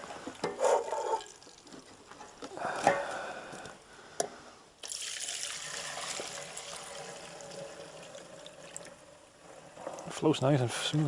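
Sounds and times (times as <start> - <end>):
liquid trickling pour: 1.0 - 1.9, 4.8 - 10.2.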